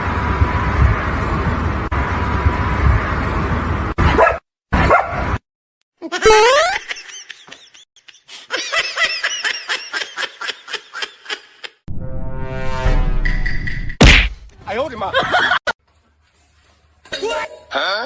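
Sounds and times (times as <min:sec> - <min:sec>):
dog yapping: 0:04.0 - 0:05.2.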